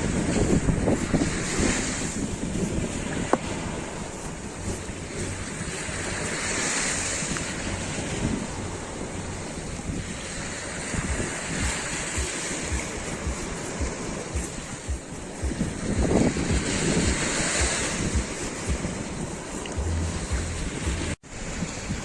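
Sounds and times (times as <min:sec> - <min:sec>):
sea waves washing on shore: 0:00.0 - 0:22.0
wind buffeting microphone: 0:00.0 - 0:22.0.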